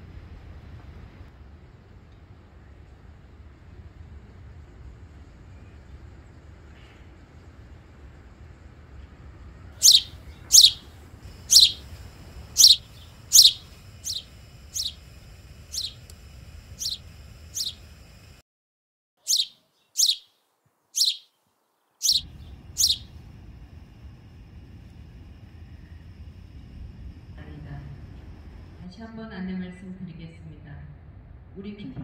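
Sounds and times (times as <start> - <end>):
bird chirps sweeping downward: 9.8 - 11.9, 12.5 - 15.0, 15.7 - 16.0, 16.8 - 17.8, 19.2 - 20.4, 21.0 - 21.4, 22.0 - 23.1.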